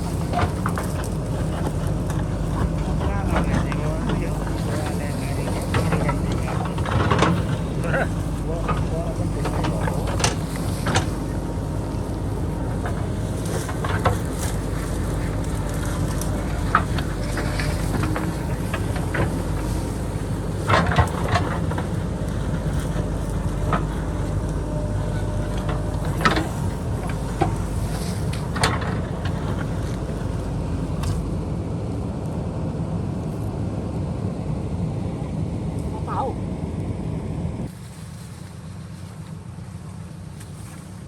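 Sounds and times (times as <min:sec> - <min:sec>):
diesel engine running under load: 0:00.0 - 0:41.0
sharp knocks and clanks: 0:00.2 - 0:30.4.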